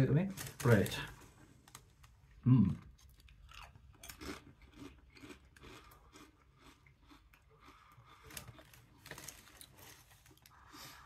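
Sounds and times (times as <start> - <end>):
person crunching a crisp: 2.9 - 11.0.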